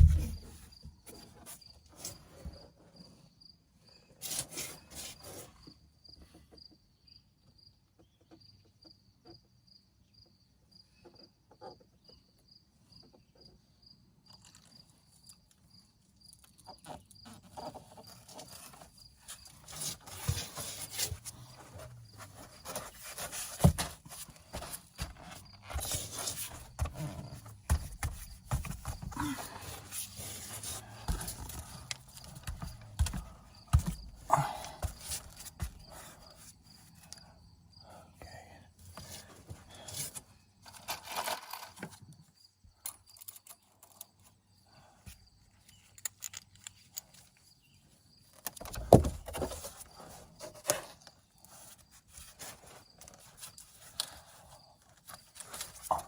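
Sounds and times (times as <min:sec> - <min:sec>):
knocks and scraping of hand work: 0:00.0 - 0:02.9, 0:16.6 - 0:36.6, 0:48.4 - 0:56.0
insect chirping: 0:06.5 - 0:20.1, 0:23.4 - 0:41.0, 0:41.6 - 0:52.0.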